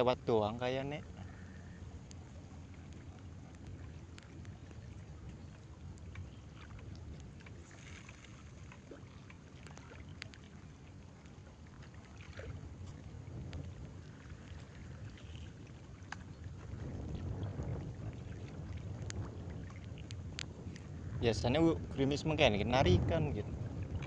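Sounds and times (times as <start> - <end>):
wind rumble on microphone: 0.0 - 24.0
light ticks: 2.0 - 2.2, 2.8 - 4.8, 9.2 - 10.5, 19.0 - 20.9.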